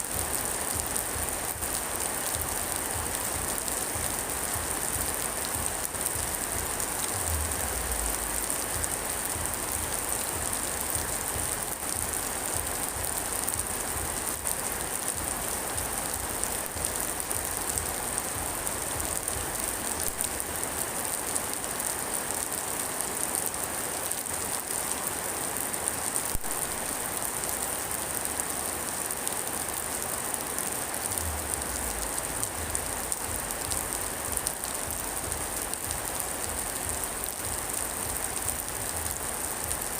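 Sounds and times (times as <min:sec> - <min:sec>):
rain falling: 0:00.0 - 0:39.9
low rumble: 0:07.1 - 0:08.6.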